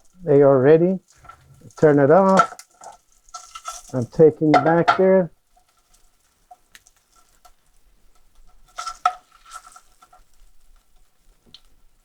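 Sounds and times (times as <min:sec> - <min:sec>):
metal utensil knocking on pan: 0:04.4 - 0:05.2.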